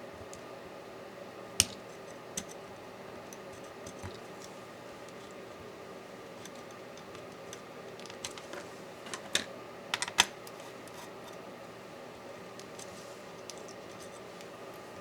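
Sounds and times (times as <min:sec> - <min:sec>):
faint steady hum: 0:00.0 - 0:15.0
clicks and taps of tools: 0:01.6 - 0:01.8, 0:06.4 - 0:11.4.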